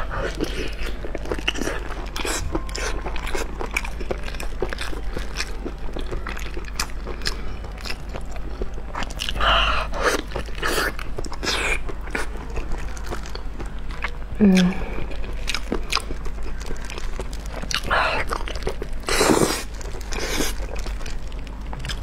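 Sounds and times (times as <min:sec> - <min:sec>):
crunchy biting and chewing: 0:00.0 - 0:22.0.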